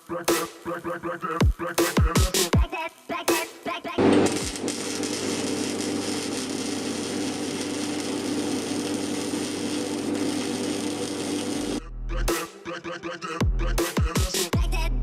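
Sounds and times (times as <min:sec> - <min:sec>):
welding arc crackling: 0:00.0 - 0:11.8
welder low hum: 0:00.0 - 0:12.8.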